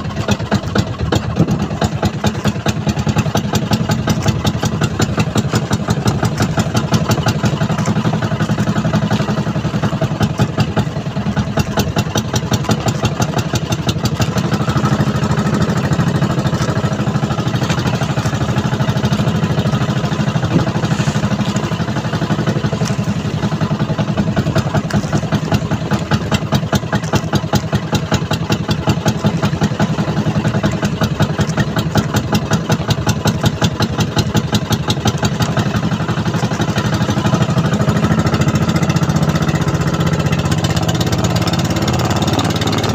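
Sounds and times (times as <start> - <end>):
boat engine running: 0.0 - 42.9.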